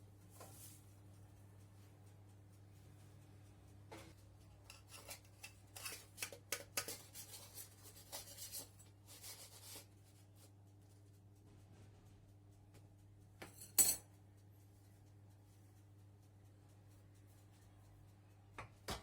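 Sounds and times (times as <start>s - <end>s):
kitchen handling clicks and taps: 3.9s - 8.4s, 13.4s - 14.0s, 18.6s - 19.0s.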